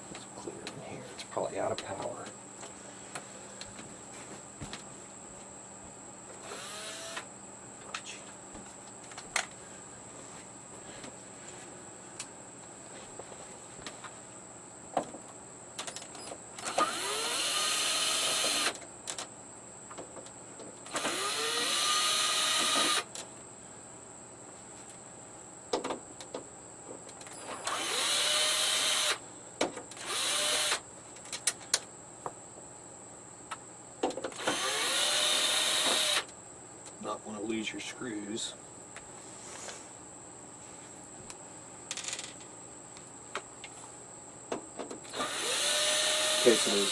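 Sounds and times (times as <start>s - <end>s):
cordless screw gun running: 6.4s - 7.3s, 16.6s - 18.8s, 20.9s - 23.1s, 27.4s - 29.2s, 30.0s - 30.8s, 34.4s - 36.3s, 45.1s - 46.9s.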